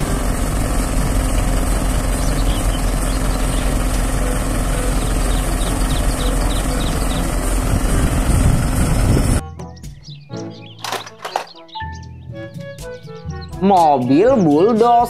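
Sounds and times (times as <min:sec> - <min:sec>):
truck engine idling: 0:00.0 - 0:09.4.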